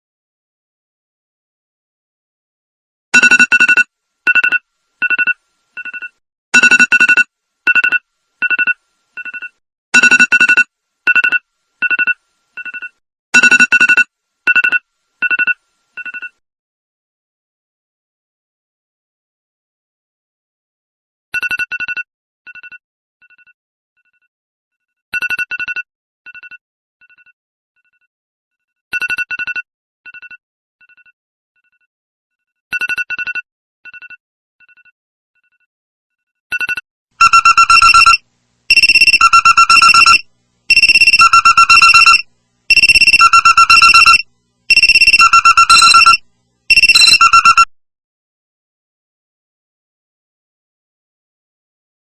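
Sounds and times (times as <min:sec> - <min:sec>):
phone alert beeps with echoes: 0:37.2 - 0:47.7
pulsing two-pitch alert tone: 0:37.2 - 0:47.7.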